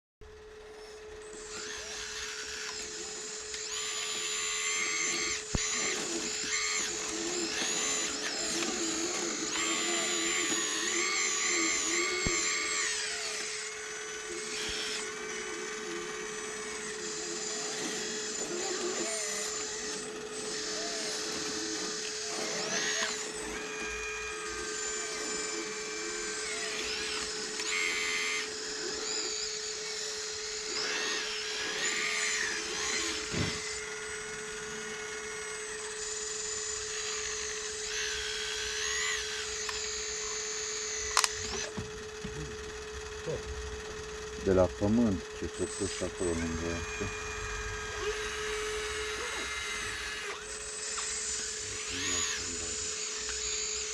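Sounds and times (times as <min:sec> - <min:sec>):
hydraulic pumps whining: 0:00.2 - 0:53.9
steady motor hum: 0:00.2 - 0:53.9
sharp click: 0:41.0 - 0:41.8.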